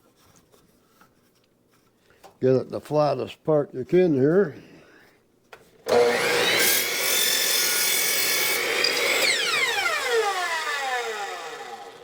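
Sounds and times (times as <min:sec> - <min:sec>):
miter saw cutting branch: 0:05.9 - 0:12.0.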